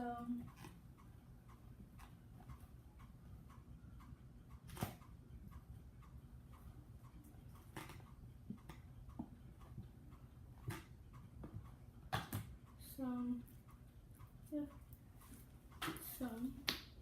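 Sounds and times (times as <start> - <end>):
soft ticking: 0.0 - 17.0.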